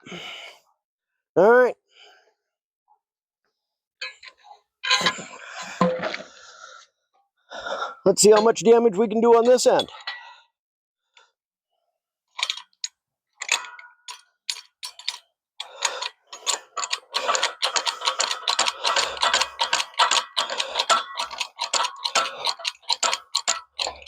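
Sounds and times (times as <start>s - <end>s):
metal parts clicking and clinking: 4.0s - 5.2s, 12.4s - 24.0s.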